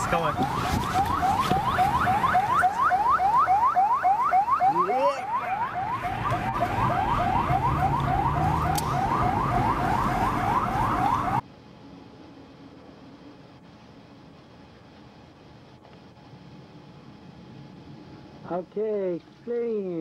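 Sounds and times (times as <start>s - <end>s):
police siren yelping: 0.0s - 11.4s
low vehicle rumble: 5.3s - 11.4s.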